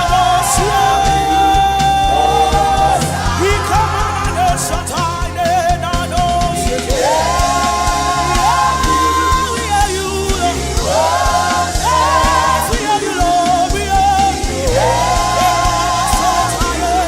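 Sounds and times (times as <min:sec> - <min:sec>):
singer holding long note: 0:00.0 - 0:05.4
gospel singers with band: 0:00.0 - 0:17.0.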